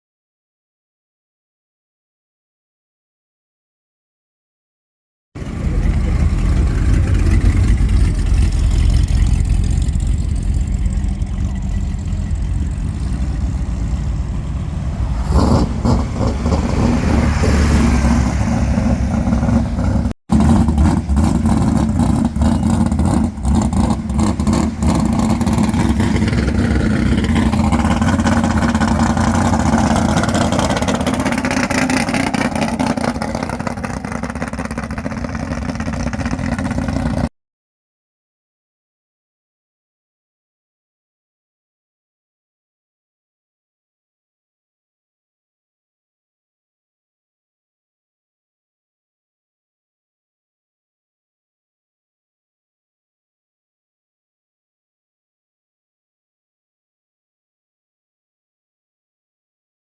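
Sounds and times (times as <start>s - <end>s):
car engine revving: 5.4s - 37.3s.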